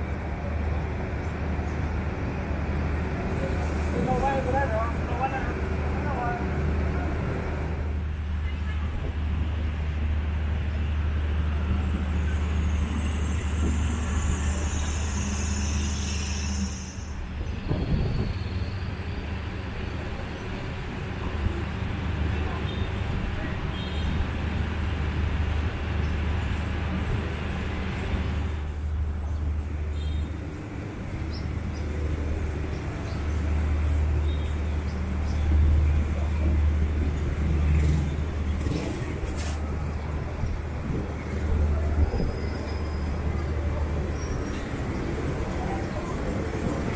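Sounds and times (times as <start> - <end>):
vehicle engine rumble: 17.2 - 46.9.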